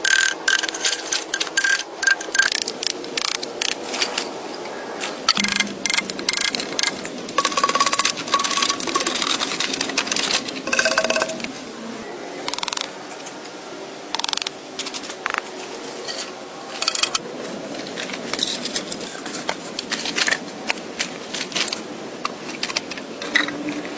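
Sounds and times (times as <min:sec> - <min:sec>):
hand tools clicking and scraping: 0:00.0 - 0:11.7.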